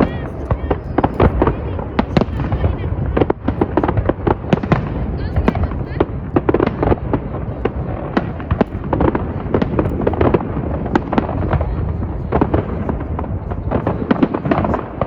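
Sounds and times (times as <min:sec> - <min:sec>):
continuous low rumble: 0:00.0 - 0:15.0
fireworks bangs and crackles: 0:00.0 - 0:15.0.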